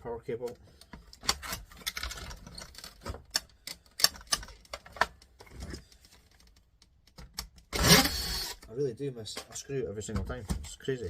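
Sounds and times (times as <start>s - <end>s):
small parts clicking and rattling: 0.5s - 8.7s.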